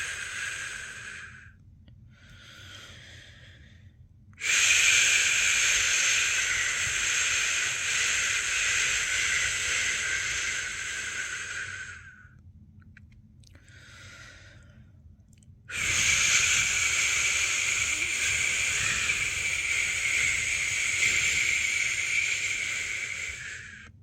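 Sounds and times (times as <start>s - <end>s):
person shushing: 15.7s - 23.9s.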